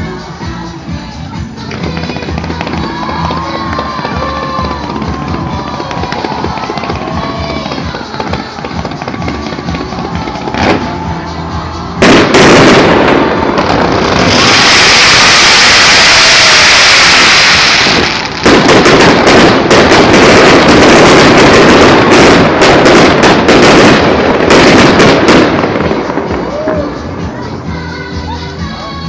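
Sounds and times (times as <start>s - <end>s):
firework crackling pops: 1.6s - 11.1s, 12.0s - 27.0s
firework hiss: 1.6s - 27.2s
firework bang: 12.0s - 26.8s.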